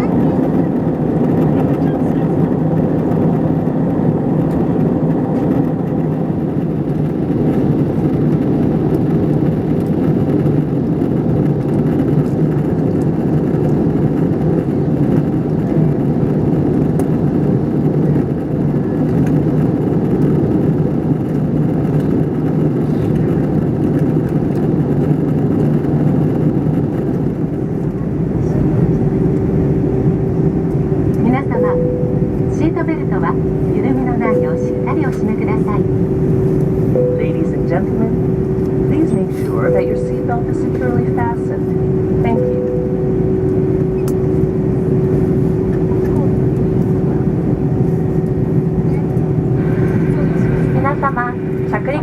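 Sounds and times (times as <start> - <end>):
airliner cabin engine hum: 0.0 - 52.0.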